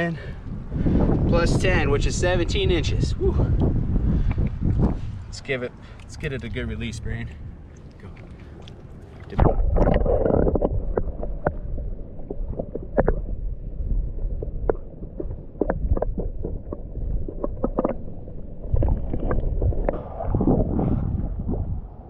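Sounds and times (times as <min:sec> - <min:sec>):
river water sloshing and gurgling: 0:04.0 - 0:13.6, 0:14.2 - 0:21.7
sharp splashes and knocks: 0:07.6 - 0:13.4.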